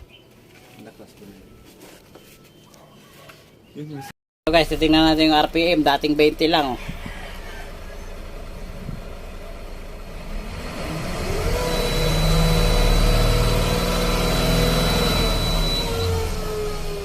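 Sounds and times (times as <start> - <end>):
diesel engine revving: 4.5 - 17.0
thin high whine: 11.2 - 16.4.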